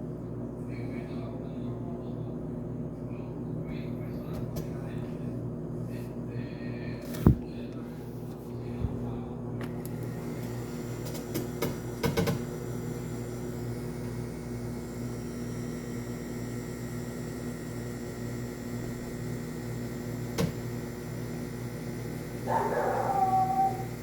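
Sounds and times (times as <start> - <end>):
washing machine motor humming: 6.7 - 24.0.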